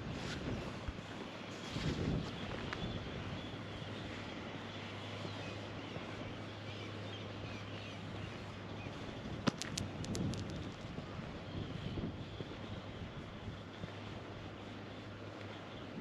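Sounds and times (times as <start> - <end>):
steady low hum: 0.0 - 16.0
light ticks: 15.3 - 15.6.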